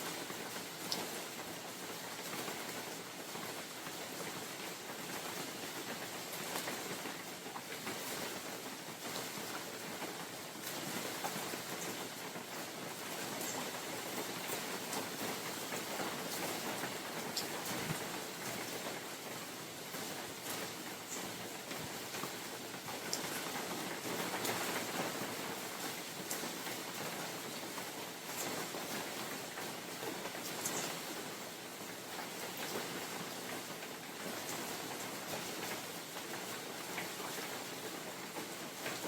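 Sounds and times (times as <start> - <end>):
rain on leaves and ground: 0.0 - 39.0
close raindrops ticking: 8.8 - 39.0.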